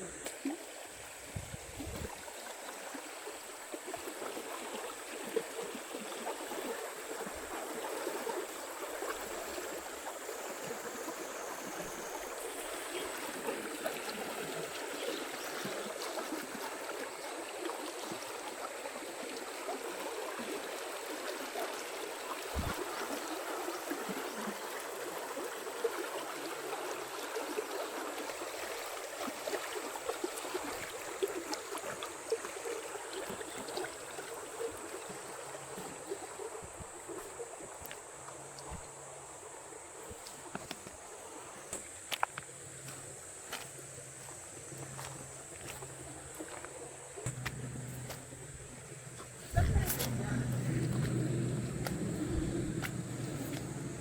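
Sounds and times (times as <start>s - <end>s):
flowing water rushing: 0.0s - 54.0s
thin high whine: 47.3s - 54.0s.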